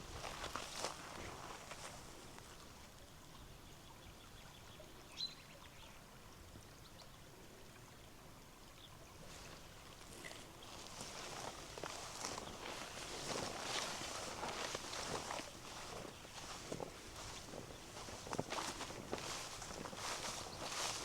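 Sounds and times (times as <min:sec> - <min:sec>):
shallow river flowing: 0:00.0 - 0:21.0.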